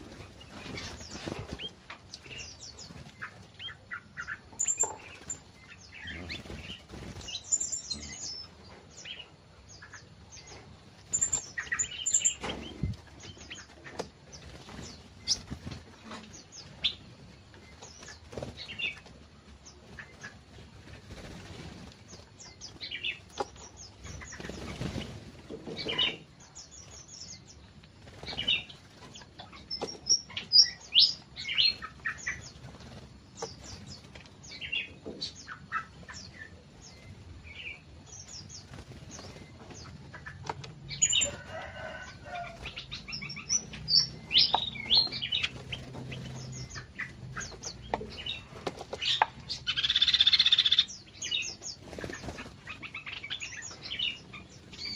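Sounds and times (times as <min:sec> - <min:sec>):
fluttering wingbeats: 0:00.0 - 0:03.6, 0:04.8 - 0:08.1, 0:11.0 - 0:26.2, 0:31.5 - 0:34.5, 0:38.2 - 0:54.9
small birds chirping: 0:00.0 - 0:54.9.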